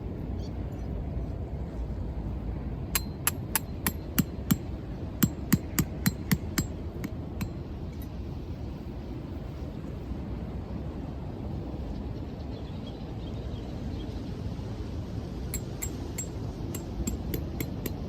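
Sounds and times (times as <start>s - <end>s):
ringing hammer strikes: 3.0s - 7.6s, 15.6s - 18.0s.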